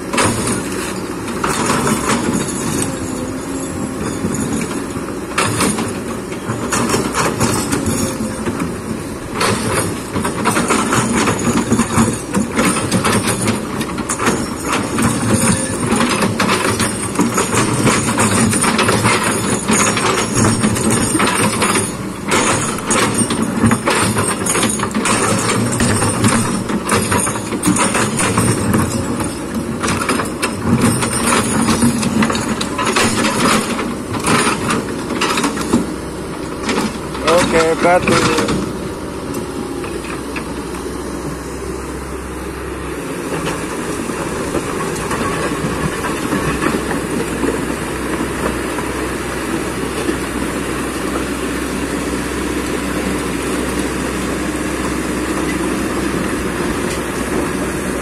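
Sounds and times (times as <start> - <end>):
digging clanks and knocks: 0.0 - 40.7
excavator diesel engine running: 0.0 - 58.0.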